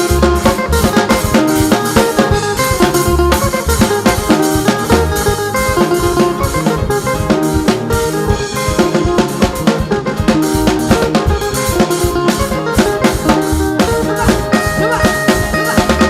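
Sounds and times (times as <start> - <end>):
drum kit beat: 0.0 - 16.0
upbeat gospel band music: 0.0 - 16.0.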